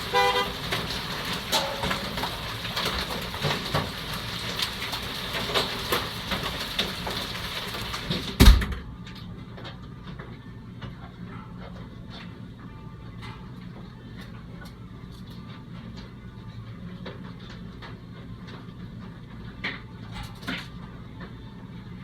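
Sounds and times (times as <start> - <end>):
rain hiss: 0.0 - 8.4
hail strikes: 0.0 - 8.7
door shutting with heavy thud: 8.3 - 9.0.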